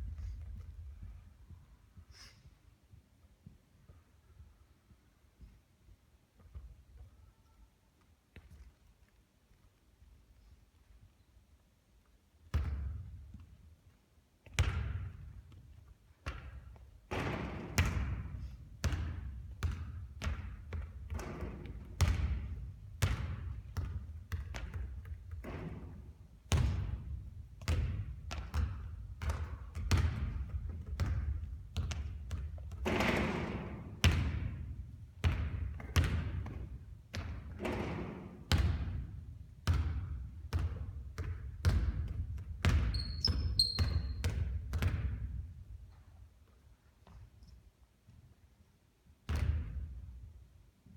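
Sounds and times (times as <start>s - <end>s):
basketball bouncing on hard floor: 12.5s - 13.6s, 14.4s - 45.6s, 49.2s - 49.9s.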